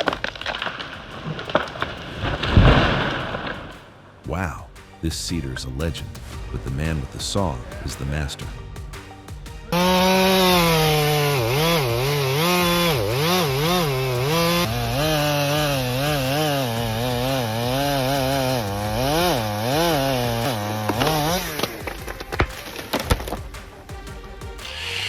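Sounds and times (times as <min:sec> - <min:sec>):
chainsaw cutting into wood: 0:00.0 - 0:03.8, 0:09.7 - 0:24.0, 0:24.6 - 0:25.0
wood snapping: 0:00.0 - 0:04.2, 0:09.8 - 0:24.0.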